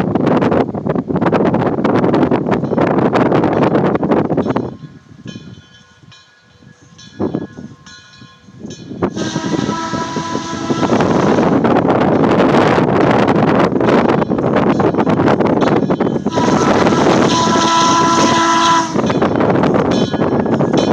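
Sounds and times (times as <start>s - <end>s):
wind noise on microphone: 0.0s - 20.9s
steam locomotive whistle: 9.1s - 11.8s, 16.2s - 19.6s.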